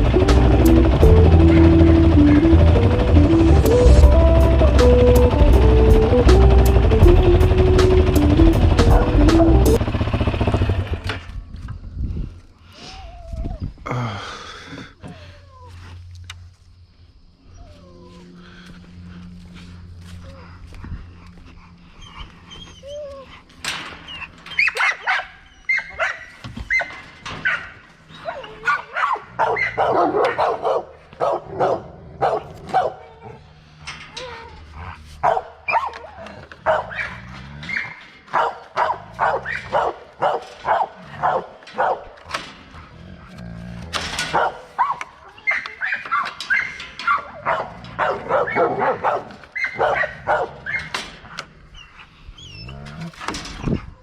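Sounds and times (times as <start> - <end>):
dog barking: 24.6 - 27.7, 28.6 - 33.4, 35.2 - 42.1, 44.3 - 50.9.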